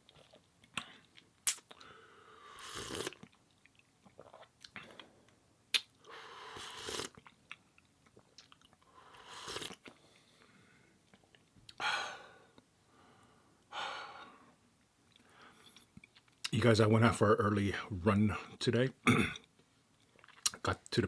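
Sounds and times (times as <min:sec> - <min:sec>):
sharp mouth clicks: 0:00.7 - 0:01.8.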